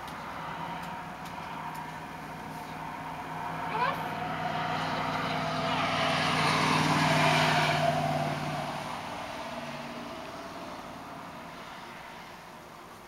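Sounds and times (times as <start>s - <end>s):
vehicle engine hum: 0.0s - 13.0s.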